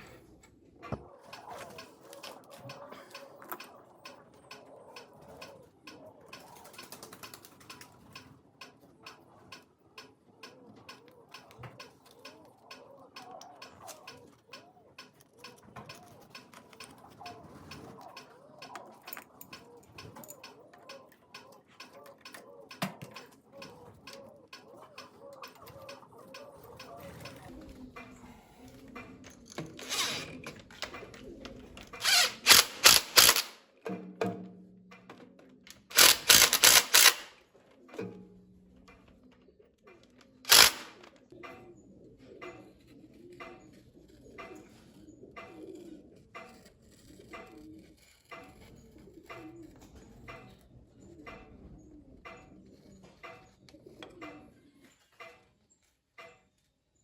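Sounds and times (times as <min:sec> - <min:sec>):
faint mechanical clicking: 0:34.9 - 0:56.8.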